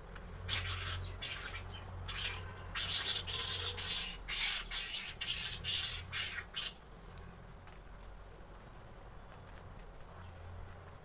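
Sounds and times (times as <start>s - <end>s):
birds squawking harshly: 0.4s - 6.8s.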